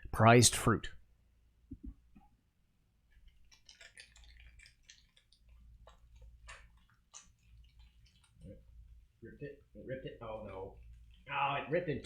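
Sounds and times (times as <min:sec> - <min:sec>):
plastic wrapper crinkling: 0:03.3 - 0:08.5.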